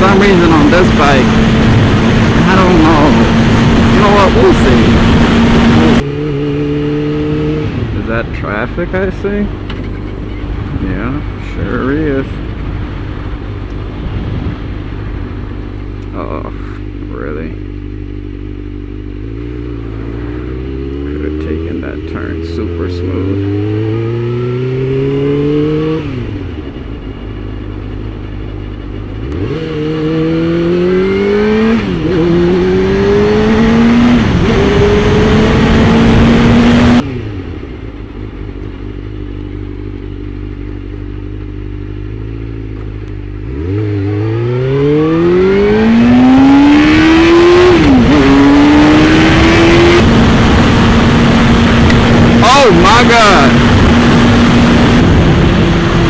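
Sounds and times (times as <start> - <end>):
rush of wind: 0.0 - 16.2, 23.3 - 39.0, 43.0 - 56.0
motorcycle engine accelerating: 0.0 - 56.0.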